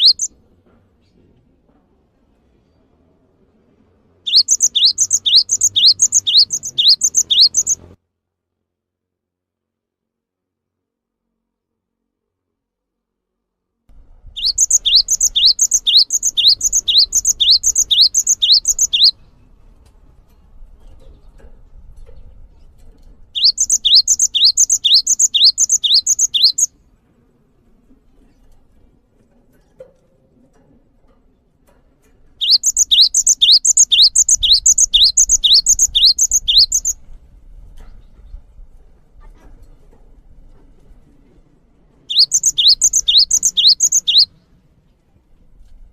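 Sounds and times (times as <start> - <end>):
songbird repeating high phrase: 0.0 - 0.3, 4.3 - 7.8, 14.4 - 19.1, 23.4 - 26.7, 32.4 - 36.9, 42.1 - 44.3.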